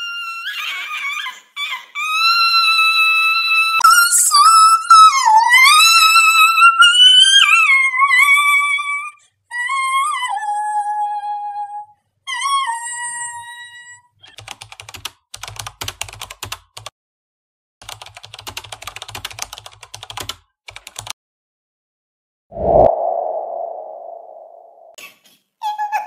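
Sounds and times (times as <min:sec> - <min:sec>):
computer keyboard typing: 0:14.4 - 0:16.9, 0:17.8 - 0:21.2.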